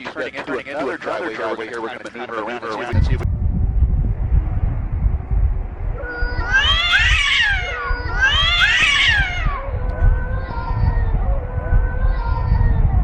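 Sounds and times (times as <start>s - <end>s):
steady low rumble: 2.9s - 13.0s
cat yowling: 6.0s - 13.0s.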